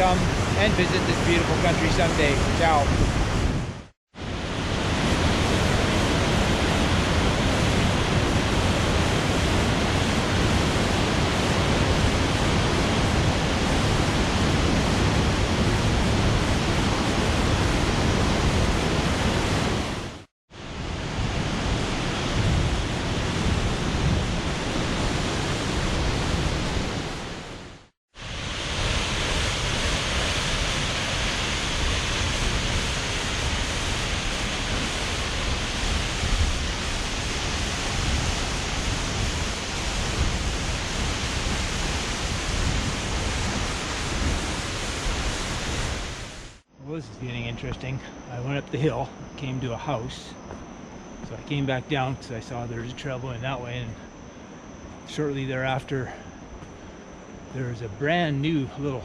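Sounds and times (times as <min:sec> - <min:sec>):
large waterfall rushing: 0:00.0 - 0:03.4, 0:28.2 - 0:46.6.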